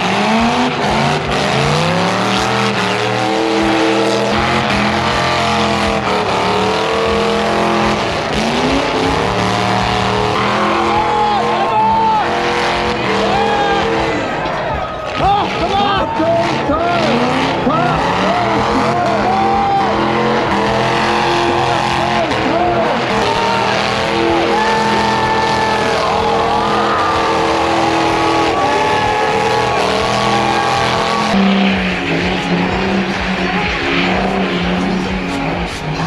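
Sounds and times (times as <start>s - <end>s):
car engine revving hard: 0.0s - 36.0s.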